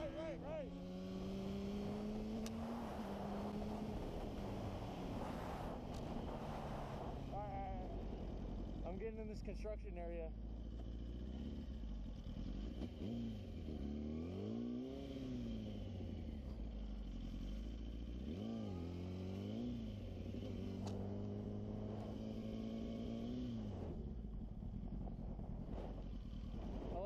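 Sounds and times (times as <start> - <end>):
motorcycle engine revving: 0.0 - 27.0
wind noise: 1.6 - 8.5.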